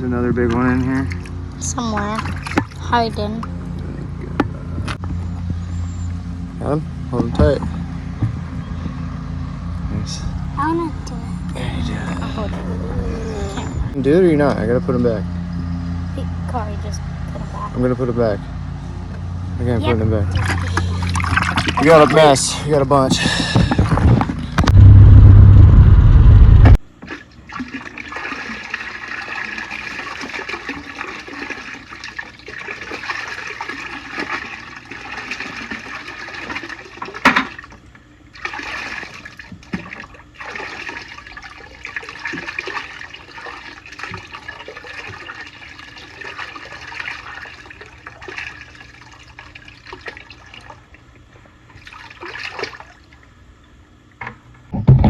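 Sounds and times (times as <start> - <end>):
water splashes: 0.0 - 5.5, 20.2 - 24.7, 26.9 - 53.4
water bubbling and sloshing: 0.0 - 14.2, 20.2 - 25.4, 26.0 - 55.0
loud low rumble: 3.6 - 20.6, 23.1 - 26.8.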